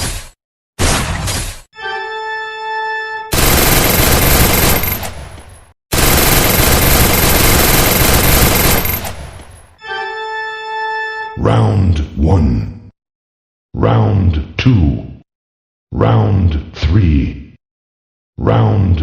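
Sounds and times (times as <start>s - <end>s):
machine-gun fire: 3.3s - 9.7s.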